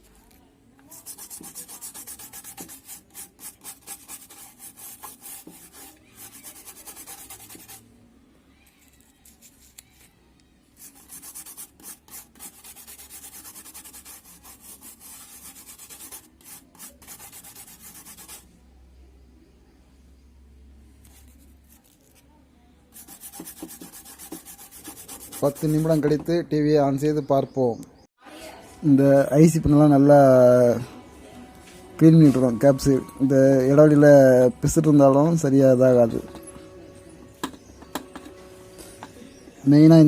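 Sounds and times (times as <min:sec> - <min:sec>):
circuit board being scrubbed: 0:00.9 - 0:07.8, 0:10.8 - 0:18.5, 0:23.0 - 0:26.2.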